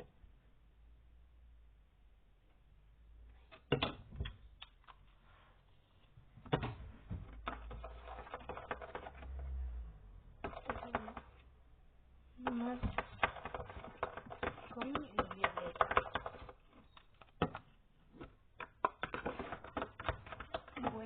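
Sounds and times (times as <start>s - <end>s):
spoon stirring in a bowl: 7.4s - 9.4s, 10.4s - 11.5s, 12.4s - 21.0s.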